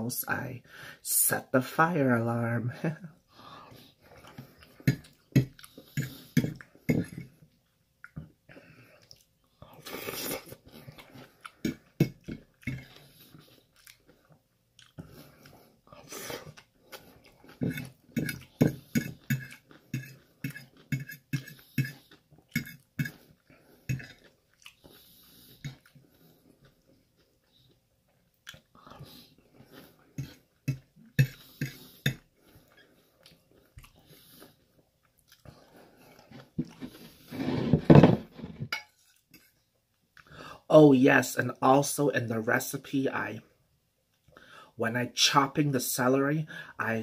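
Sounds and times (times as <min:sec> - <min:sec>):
chewing with wet mouth clicks: 0:09.0 - 0:09.3, 0:10.8 - 0:15.6, 0:16.4 - 0:35.7.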